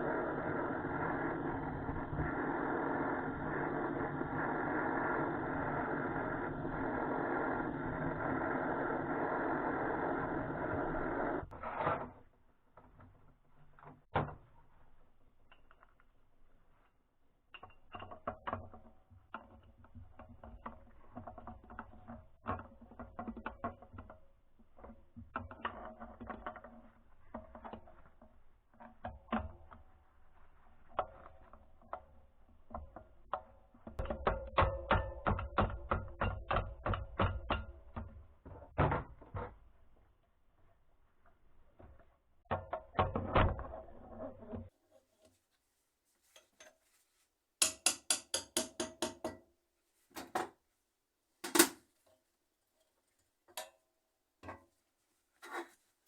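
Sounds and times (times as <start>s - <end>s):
metal tools clicking and knocking: 47.6s - 49.5s.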